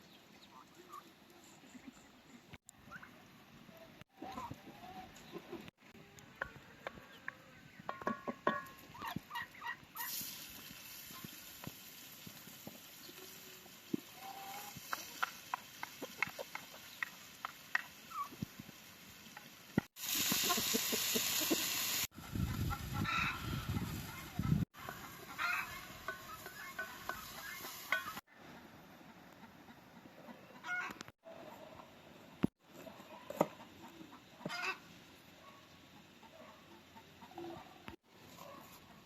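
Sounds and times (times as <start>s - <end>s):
chickens clucking: 0.4s - 2.1s, 2.8s - 10.2s, 13.8s - 18.6s, 19.3s - 39.0s
loud steady hiss: 20.0s - 22.1s.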